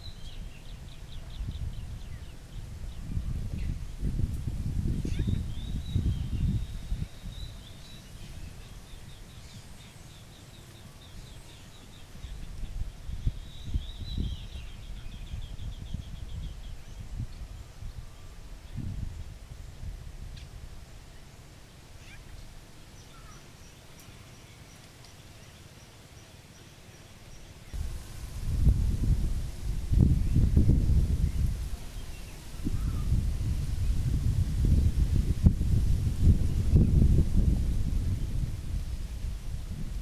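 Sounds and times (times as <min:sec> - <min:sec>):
faint bird chirps: 0:05.0 - 0:18.9, 0:22.0 - 0:27.8, 0:31.2 - 0:33.2
low rumbling noise: 0:27.8 - 0:40.0.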